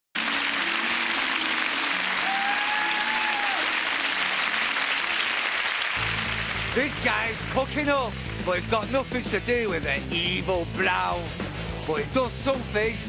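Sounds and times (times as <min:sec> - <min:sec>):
audience applauding: 0:00.2 - 0:08.7.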